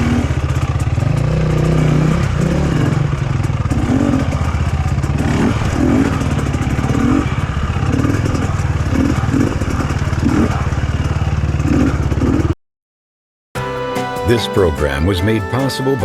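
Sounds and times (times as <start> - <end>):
dirt bike engine idling: 0.0 - 12.6.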